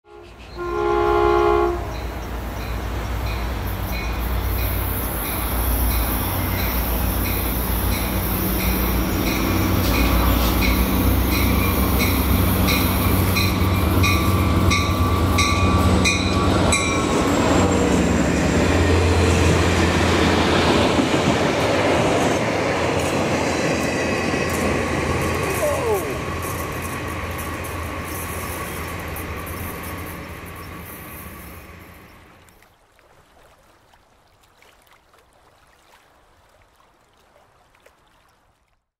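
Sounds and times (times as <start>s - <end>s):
locomotive horn blast: 0.0s - 2.2s
engine and wheels rumbling: 1.8s - 32.4s
locomotive bell ringing: 1.9s - 17.6s.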